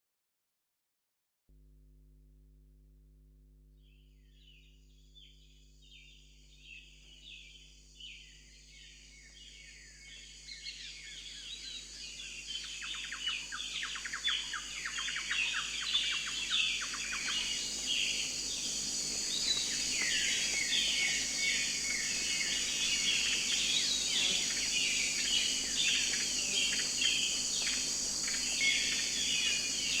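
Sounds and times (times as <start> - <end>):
high insect-like buzz: 6.6 - 30.0
many birds chirping and singing: 6.7 - 30.0.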